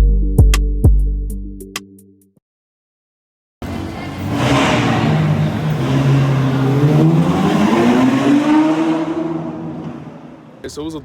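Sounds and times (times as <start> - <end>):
car engine accelerating: 3.6 - 10.6.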